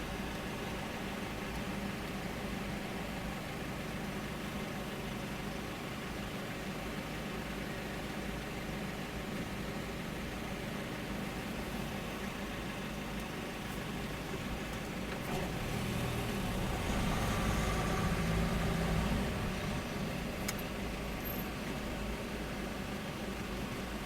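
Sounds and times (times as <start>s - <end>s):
car engine and road noise: 5.8s - 24.0s.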